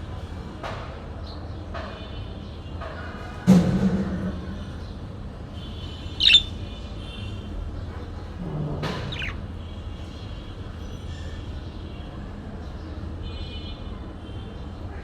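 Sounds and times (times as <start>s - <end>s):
falling bird call: 6.2s - 6.5s, 9.1s - 9.4s
bird chattering: 6.2s - 6.6s, 9.1s - 9.4s
bird squawk: 6.2s - 6.6s, 9.0s - 9.4s.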